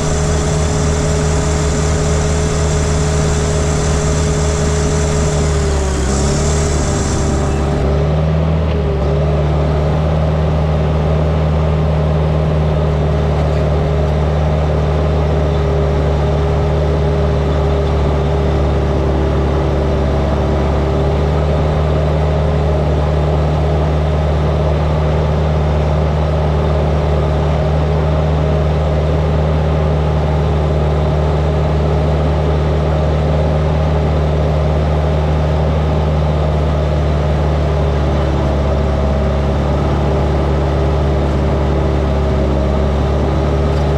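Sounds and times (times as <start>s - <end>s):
heavy diesel engine running: 0.0s - 12.6s.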